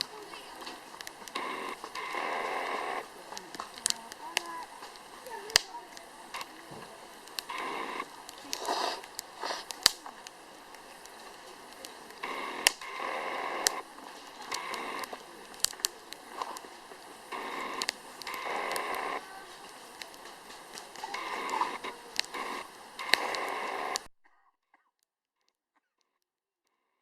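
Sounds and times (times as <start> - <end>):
campfire crackling and popping: 0.0 - 24.1
fire hissing: 0.0 - 24.1.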